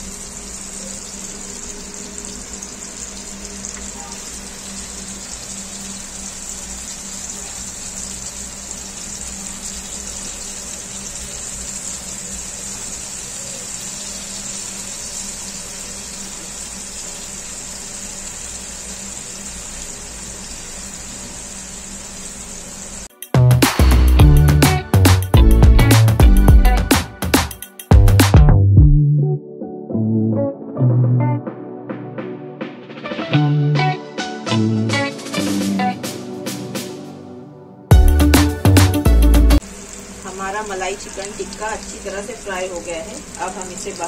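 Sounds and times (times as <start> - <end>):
meat sizzling in oil: 0.0 - 23.1, 39.6 - 44.0.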